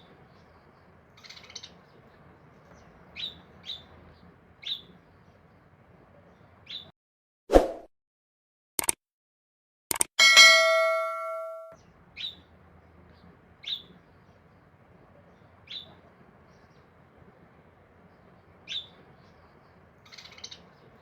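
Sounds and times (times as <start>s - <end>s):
sharp clicks: 8.8s - 9.0s, 9.9s - 10.1s
bell ding: 10.2s - 11.8s.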